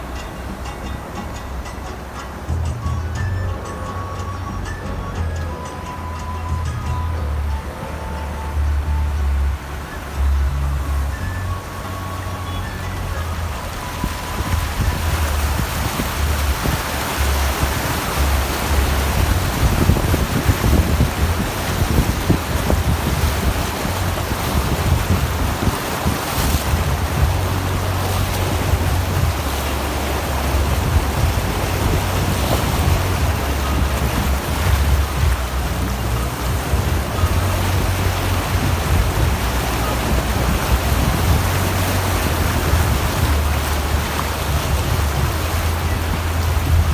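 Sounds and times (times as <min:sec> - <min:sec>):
road noise: 0:00.0 - 0:46.9
water rushing under vehicle: 0:00.0 - 0:46.9
wind buffeting microphone: 0:00.0 - 0:46.9.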